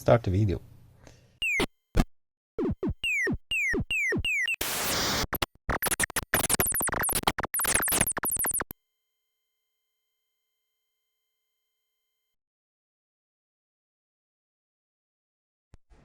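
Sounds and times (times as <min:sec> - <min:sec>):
falling synthesizer pitch sweeps: 0:01.4 - 0:01.7, 0:02.6 - 0:08.7
warbling high synth arpeggios: 0:01.4 - 0:01.7, 0:02.6 - 0:08.7.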